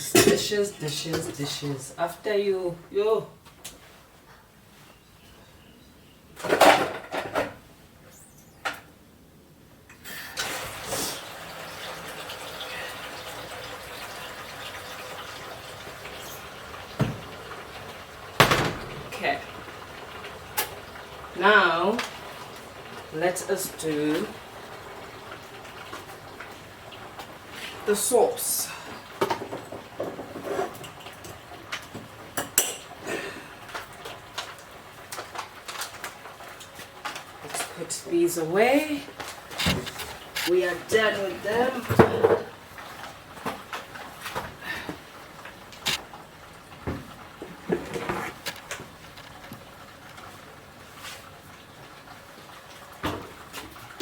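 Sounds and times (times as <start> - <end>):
tap water running: 10.3 - 54.0
dishes and cutlery clinking: 32.4 - 33.0.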